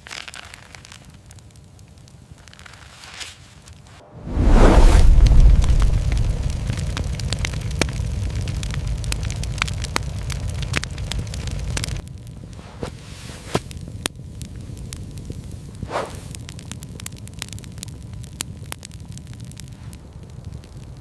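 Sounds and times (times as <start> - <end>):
wood fire crackling: 0.0 - 21.0
short rush: 4.0 - 7.2
low steady rumble: 4.0 - 12.0.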